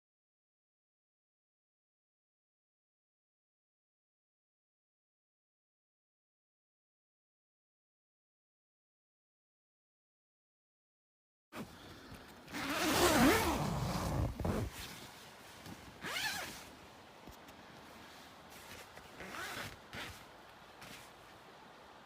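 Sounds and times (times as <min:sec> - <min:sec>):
zipper being pulled: 0:12.5 - 0:15.1, 0:16.0 - 0:16.7, 0:18.6 - 0:21.1.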